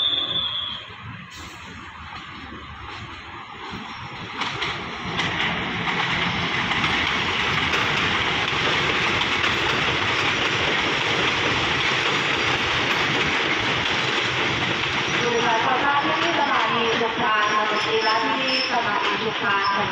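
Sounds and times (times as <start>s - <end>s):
train wheels rumbling on rails: 0.0s - 19.9s.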